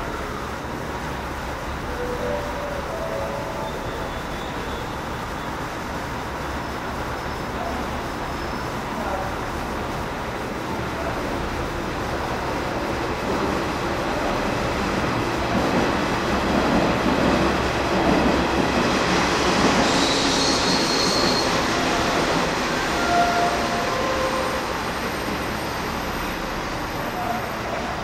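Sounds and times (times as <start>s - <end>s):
train wheels rolling on rails: 0.0s - 28.0s
train wheels squealing: 1.9s - 5.6s, 7.2s - 8.8s, 19.7s - 22.2s.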